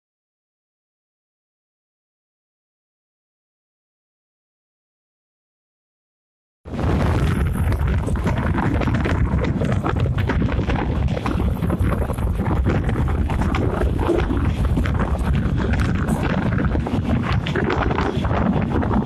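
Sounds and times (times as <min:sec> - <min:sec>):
wind buffeting microphone: 0:06.7 - 0:19.0.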